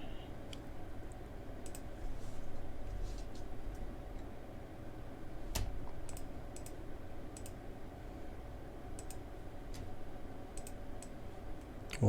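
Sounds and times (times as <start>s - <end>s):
steady low hum: 0.0s - 12.0s
computer mouse buttons clicking: 1.6s - 1.8s, 5.6s - 6.8s, 7.4s - 7.6s, 9.0s - 9.2s, 10.6s - 11.1s.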